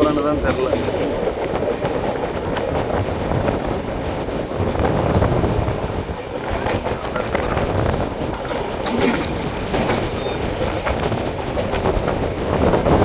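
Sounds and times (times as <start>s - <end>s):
train wheels rumbling on rails: 0.0s - 13.0s
wind buffeting microphone: 0.0s - 13.0s.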